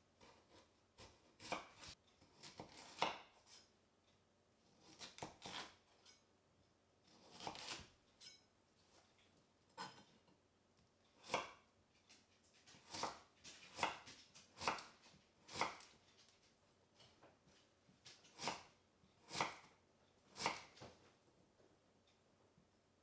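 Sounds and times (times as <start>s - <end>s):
knife chopping vegetables on board: 0.2s - 3.6s, 4.8s - 5.8s, 7.1s - 8.4s, 9.8s - 10.0s, 11.2s - 11.6s, 12.7s - 16.0s, 18.1s - 19.7s, 20.3s - 20.9s.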